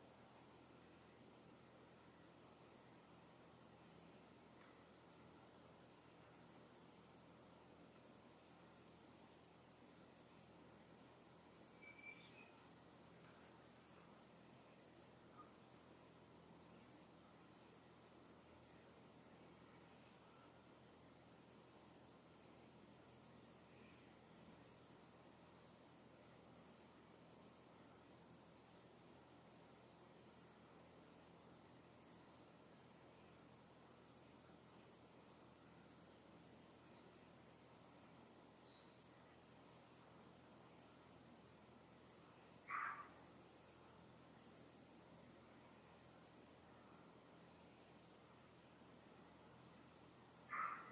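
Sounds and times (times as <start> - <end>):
faint steady hiss: 0.0 - 50.9
distant bird chirps: 11.4 - 14.1, 42.0 - 46.5, 47.2 - 50.9.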